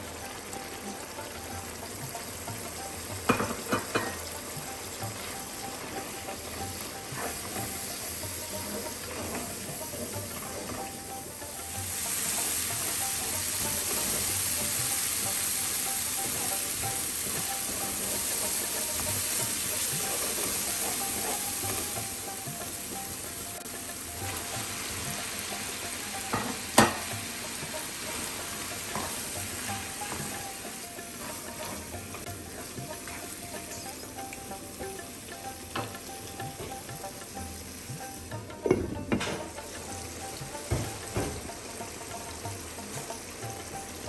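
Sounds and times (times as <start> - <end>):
food sizzling in oil: 0.0 - 44.0
spatula stirring in pan: 2.2 - 34.0.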